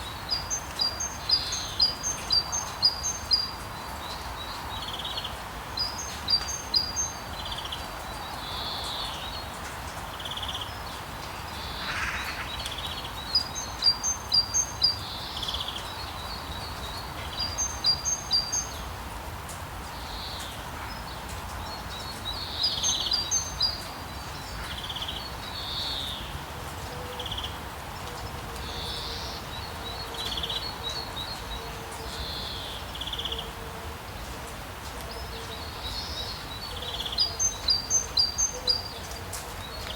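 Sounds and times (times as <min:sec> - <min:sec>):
soft bird calls: 0:10.3 - 0:15.8.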